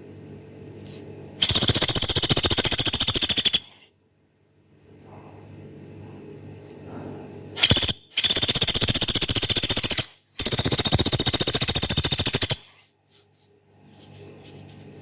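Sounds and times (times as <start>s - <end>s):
woodpecker harsh trills: 1.4s - 3.8s, 7.6s - 12.8s.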